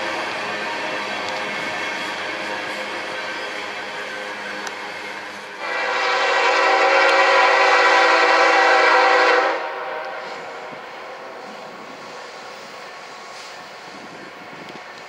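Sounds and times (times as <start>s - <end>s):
moving train rumble: 0.0s - 15.0s
locomotive air horn blast: 5.6s - 11.4s.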